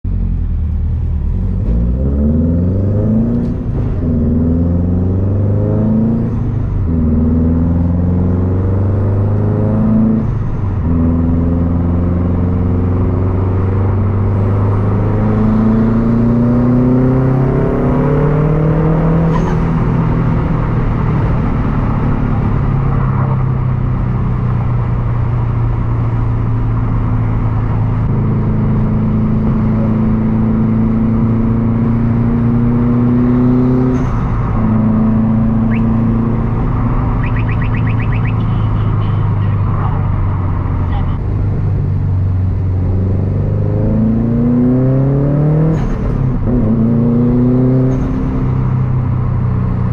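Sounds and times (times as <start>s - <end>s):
car engine accelerating: 0.0s - 49.9s.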